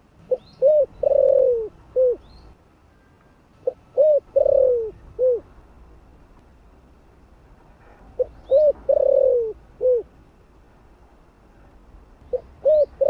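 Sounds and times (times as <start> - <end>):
dove cooing: 0.2 - 2.3, 3.6 - 5.5, 8.2 - 10.1, 12.3 - 13.0.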